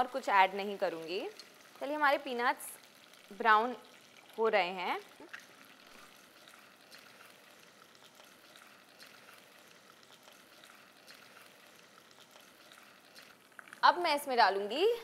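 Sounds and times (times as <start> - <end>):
faint sizzle of frying: 0.0 - 15.0
small crackles: 5.0 - 14.0.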